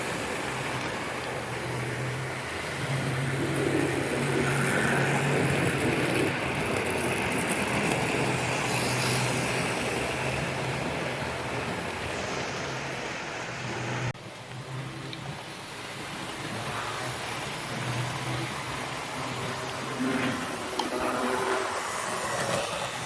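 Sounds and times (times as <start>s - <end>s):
wheel and rail noise: 0.0s - 23.0s
model train motor hum: 15.1s - 23.0s.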